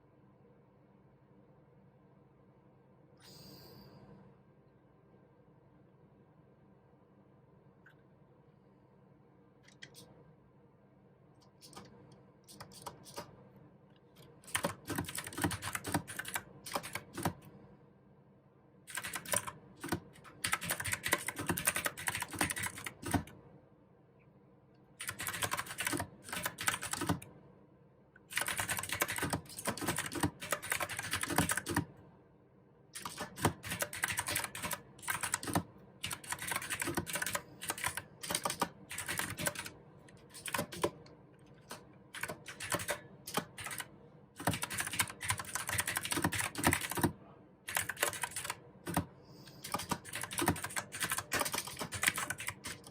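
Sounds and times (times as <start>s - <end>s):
mechanical keyboard typing: 12.5s - 13.3s, 14.2s - 17.5s, 18.9s - 23.4s, 25.0s - 27.3s, 28.3s - 31.9s, 33.0s - 52.9s.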